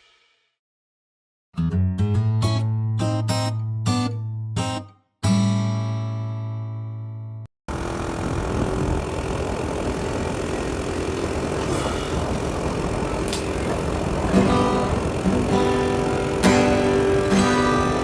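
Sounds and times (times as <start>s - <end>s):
music: 0.0s - 0.6s, 1.6s - 7.5s, 14.4s - 18.0s
small motorcycle engine idling: 7.7s - 18.0s.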